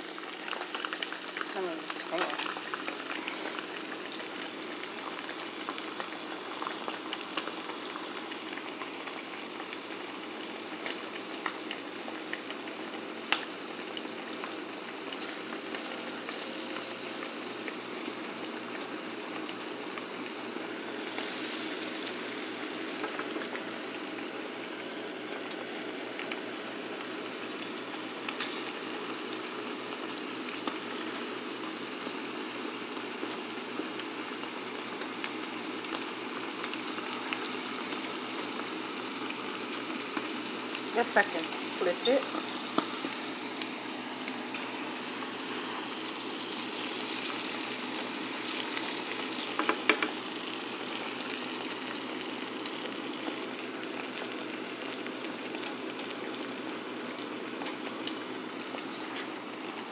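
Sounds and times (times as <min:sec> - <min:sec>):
food frying in grease: 0:00.0 - 0:59.9
grease popping: 0:48.7 - 0:50.3.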